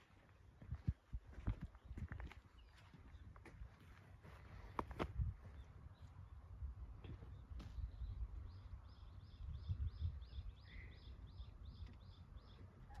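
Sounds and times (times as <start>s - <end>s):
wind on microphone: 0.6s - 2.4s, 4.8s - 5.6s, 7.5s - 10.7s.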